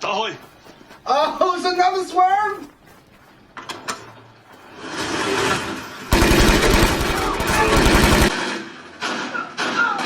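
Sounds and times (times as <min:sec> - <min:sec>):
rapid automatic gunfire: 0:06.1 - 0:08.7.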